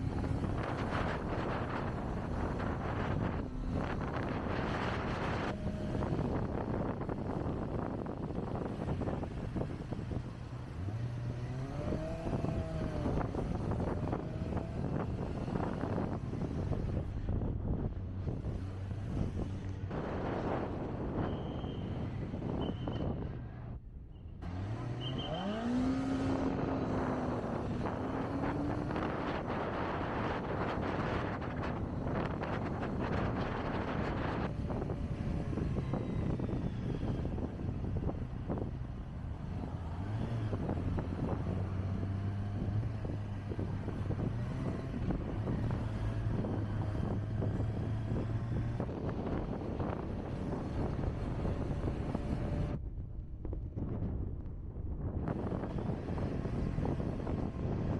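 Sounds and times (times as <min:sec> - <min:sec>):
motorcycle engine revving: 0:00.0 - 0:17.2, 0:24.4 - 0:52.8
wind buffeting microphone: 0:00.0 - 0:24.8, 0:25.6 - 0:57.9.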